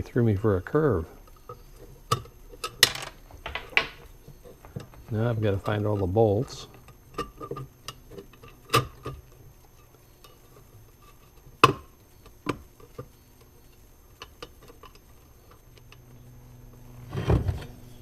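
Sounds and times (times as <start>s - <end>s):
small metal parts clinking: 2.2s - 7.6s.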